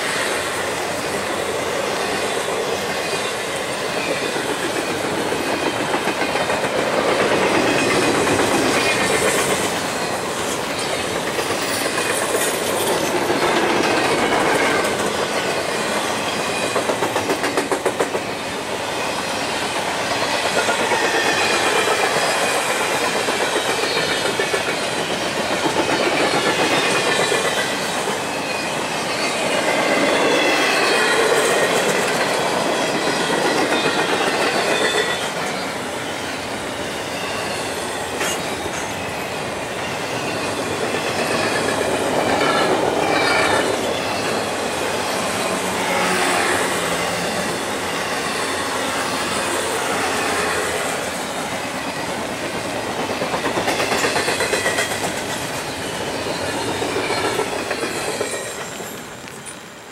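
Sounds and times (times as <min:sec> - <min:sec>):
steel wheels clattering over rails: 0:01.0 - 0:18.8, 0:37.4 - 0:59.6
high wheel squeal: 0:25.7 - 0:32.0, 0:32.8 - 0:52.2, 0:53.4 - 0:59.8.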